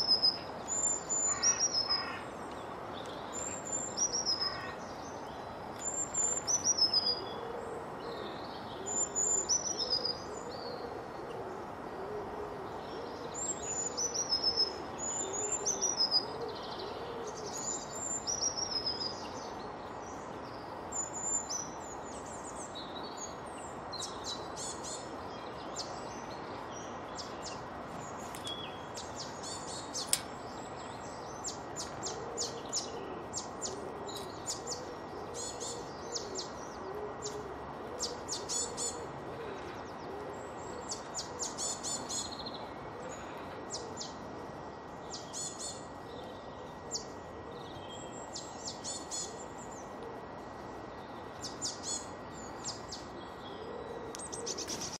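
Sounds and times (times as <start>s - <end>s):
steady background noise: 0.0s - 55.0s
small birds chirping: 12.8s - 55.0s.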